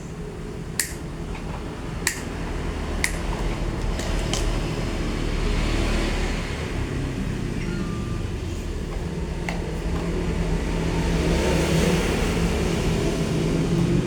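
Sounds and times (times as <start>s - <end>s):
gas burner rumbling and hissing: 0.0s - 14.0s
sharp metallic clicks: 0.8s - 1.0s, 2.1s - 2.3s.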